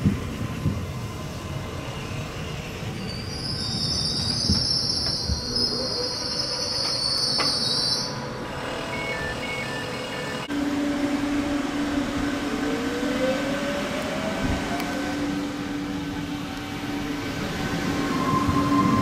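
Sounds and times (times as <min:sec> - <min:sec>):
train rumbling past: 0:00.0 - 0:19.0
wheels squealing: 0:02.8 - 0:10.3.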